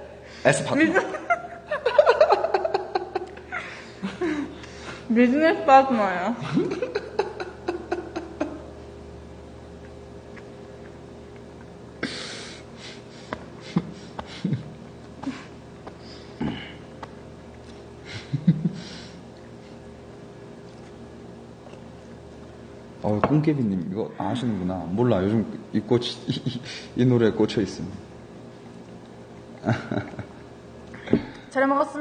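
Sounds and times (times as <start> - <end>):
faint steady hum: 0.0 - 32.0
breathy sniffs: 12.0 - 14.5.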